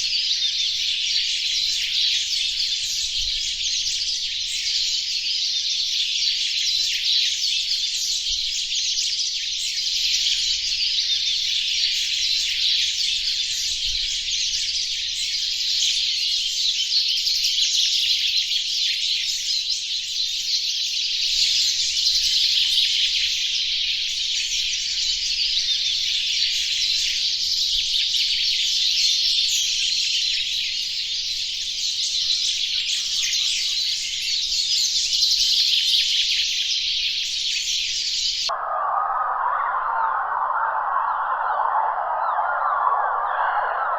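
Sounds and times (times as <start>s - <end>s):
dense bird twittering: 38.0s - 43.9s.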